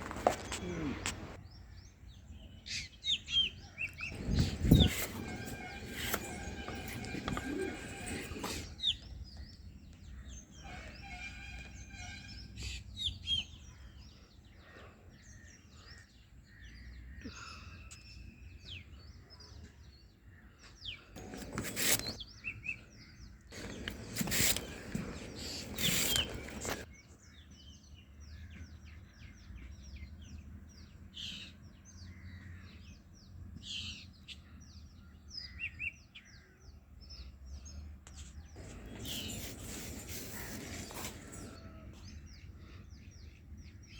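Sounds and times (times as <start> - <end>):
small birds chirping: 0.0 - 43.9
loud rustling or scraping: 4.1 - 8.9, 21.2 - 22.2, 23.6 - 26.9, 38.6 - 41.8.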